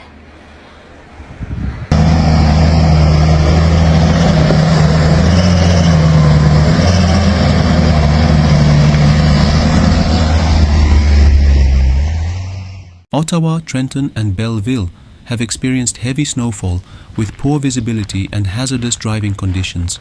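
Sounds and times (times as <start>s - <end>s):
motor engine running: 1.9s - 12.2s.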